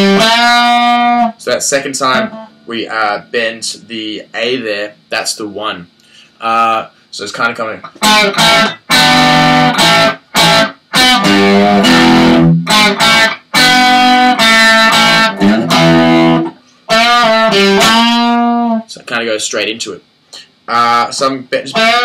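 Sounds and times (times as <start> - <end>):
electric guitar solo with bends: 0.0 - 1.3, 2.2 - 2.6, 7.9 - 18.8, 21.7 - 22.0.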